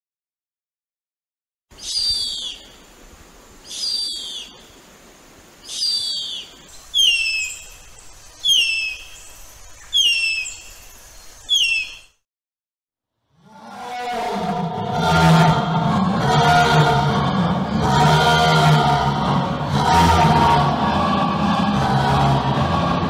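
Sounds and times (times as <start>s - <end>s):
bird calling: 1.7s - 2.8s, 3.6s - 4.9s, 5.6s - 12.2s.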